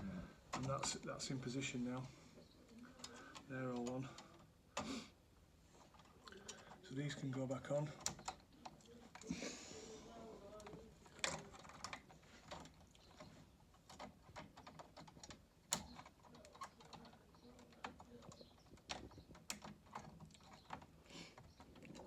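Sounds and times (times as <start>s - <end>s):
small plastic parts clicking: 10.5s - 22.0s.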